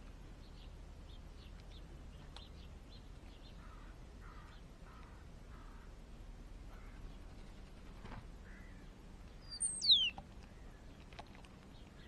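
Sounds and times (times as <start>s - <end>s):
steady low rumble: 0.0s - 9.6s
garden birds chirping: 0.0s - 12.0s.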